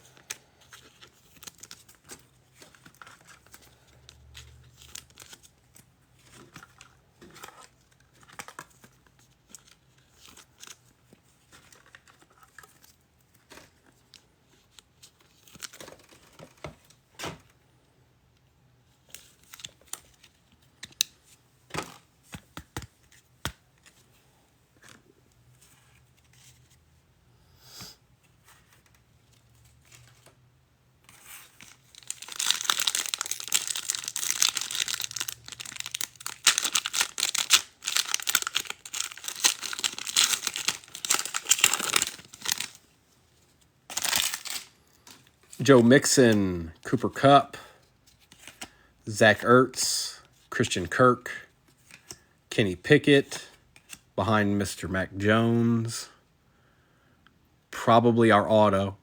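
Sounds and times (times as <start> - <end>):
cards being handled: 19.1 - 24.1, 31.1 - 42.8, 43.9 - 46.3, 48.0 - 49.4, 53.5 - 54.1
foil wrappers tearing and crinkling: 31.6 - 42.8, 43.9 - 44.7.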